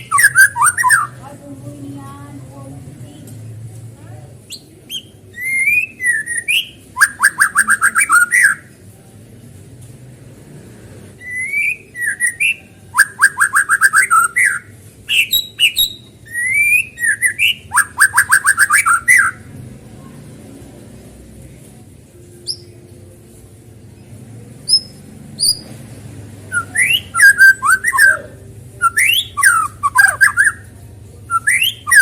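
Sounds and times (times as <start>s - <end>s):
songbird singing whistles: 0.0s - 1.2s, 4.5s - 8.8s, 11.2s - 19.5s, 22.4s - 22.8s, 24.6s - 25.8s, 26.4s - 32.0s.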